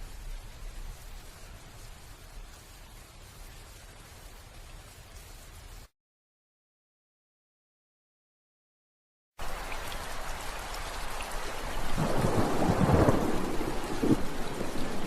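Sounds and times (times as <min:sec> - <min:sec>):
heavy rain: 0:00.0 - 0:05.9, 0:09.4 - 0:15.0
thunder rumbling: 0:11.7 - 0:15.0.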